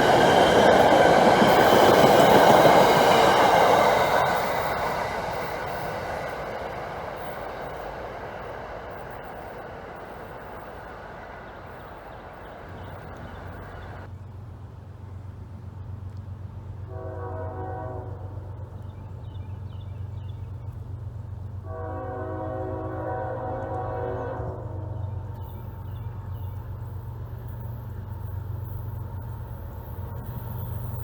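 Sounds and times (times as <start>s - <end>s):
train rumbling: 0.0s - 31.0s
train air horn blasts: 16.9s - 18.4s, 21.6s - 25.1s.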